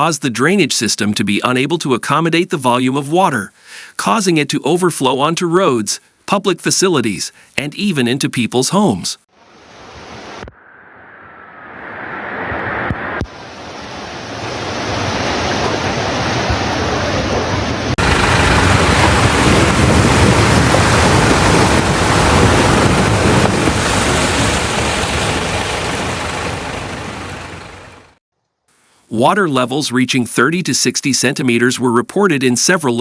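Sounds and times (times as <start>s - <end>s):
floodwater rushing: 12.6s - 28.2s
wind buffeting microphone: 13.9s - 27.9s.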